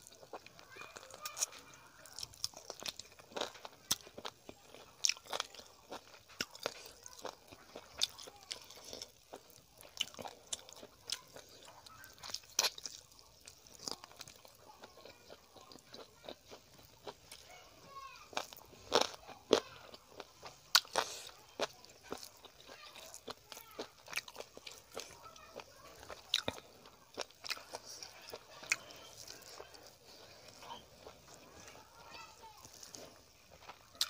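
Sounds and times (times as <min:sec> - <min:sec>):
close chewing with mouth smacks: 0:00.0 - 0:17.5, 0:18.3 - 0:34.0.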